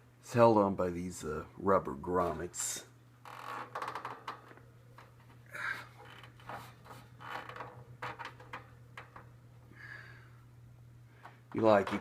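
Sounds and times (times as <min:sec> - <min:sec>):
fan handling clicks and knocks: 0:11.2 - 0:12.0.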